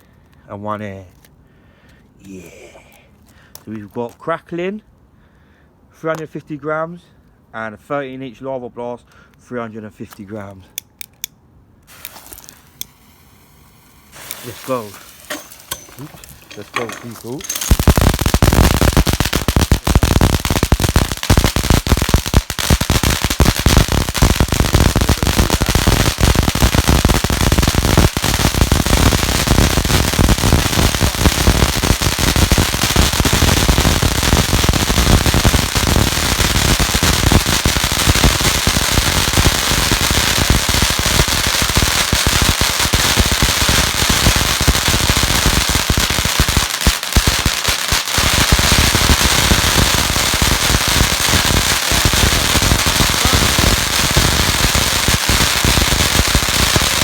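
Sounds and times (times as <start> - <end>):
firework fountains crackling: 11.9 - 57.0
firework hiss: 11.9 - 57.0.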